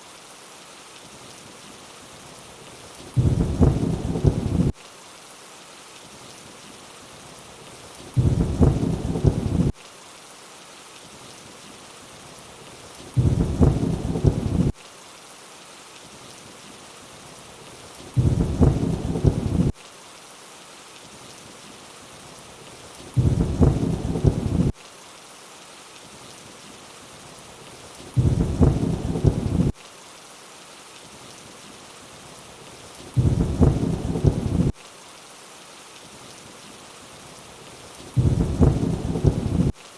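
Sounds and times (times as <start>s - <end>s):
steady rainfall: 0.0s - 39.9s
low rumble of thunder: 3.2s - 4.7s, 8.2s - 9.7s, 13.2s - 14.7s, 18.2s - 19.7s, 23.2s - 24.7s, 28.2s - 29.7s, 33.2s - 34.7s, 38.2s - 39.7s.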